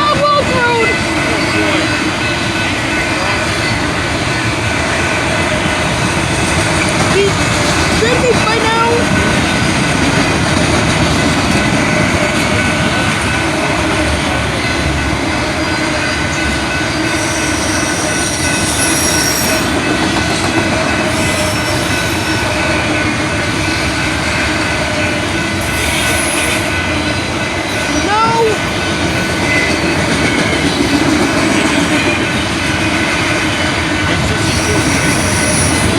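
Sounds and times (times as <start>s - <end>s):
train wheels rumbling on rail: 0.0s - 35.9s
high-pitched wheel squeals: 17.0s - 19.7s, 34.4s - 35.9s.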